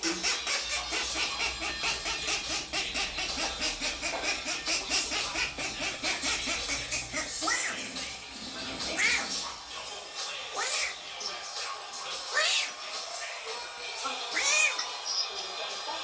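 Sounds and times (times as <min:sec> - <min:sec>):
parrot squawking: 0:00.0 - 0:11.1, 0:12.2 - 0:12.8, 0:14.2 - 0:14.9.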